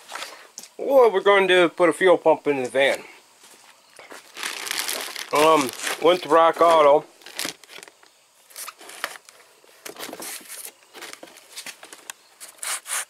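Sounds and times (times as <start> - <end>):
packaging crinkling and rustling: 4.1 - 12.6.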